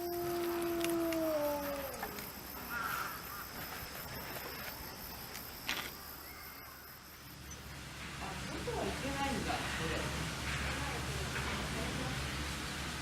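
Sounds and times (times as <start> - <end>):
animal call falling in pitch: 0.0 - 3.1.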